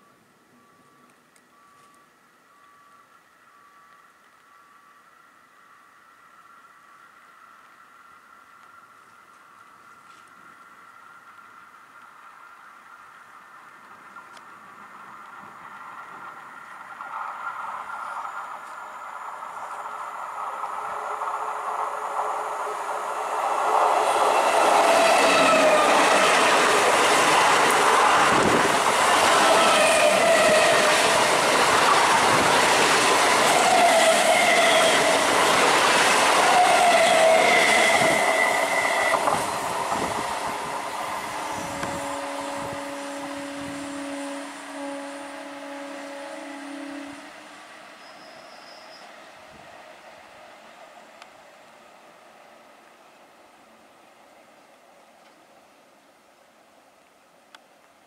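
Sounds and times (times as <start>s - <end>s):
train wheels clattering on rails: 13.2s - 42.0s
two-tone train horn blast: 28.2s - 31.3s, 33.4s - 35.4s, 36.4s - 39.3s, 41.2s - 49.0s.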